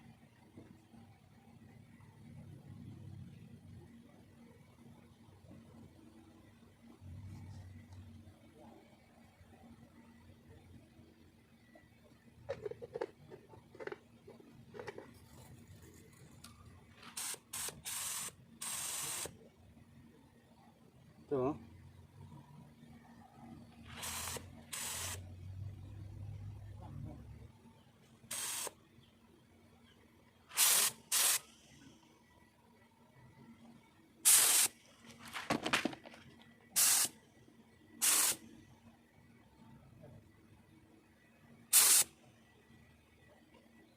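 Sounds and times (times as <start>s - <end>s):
paint spray gun hissing: 17.0s - 19.3s, 23.9s - 25.2s, 28.3s - 28.7s, 30.5s - 31.5s, 34.2s - 34.7s, 36.8s - 37.1s, 38.0s - 38.4s, 41.7s - 42.1s
knocks and clatter of handling: 35.1s - 36.5s.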